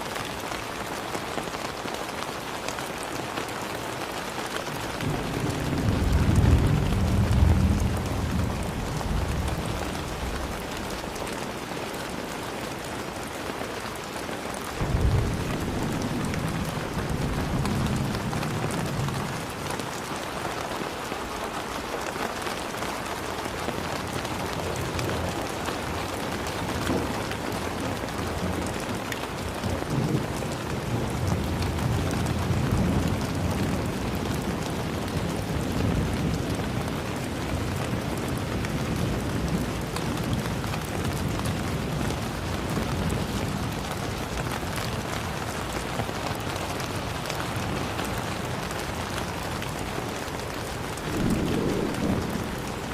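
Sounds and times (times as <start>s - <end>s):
heavy rain pattering: 0.0s - 52.9s
low rumble: 50.9s - 52.9s.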